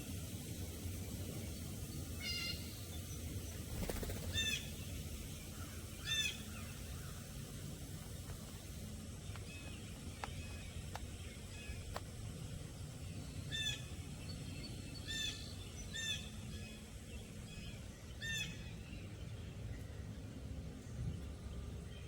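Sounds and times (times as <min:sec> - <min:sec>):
low background noise: 0:00.0 - 0:22.0
wild bird calling: 0:02.2 - 0:02.8, 0:03.7 - 0:07.4.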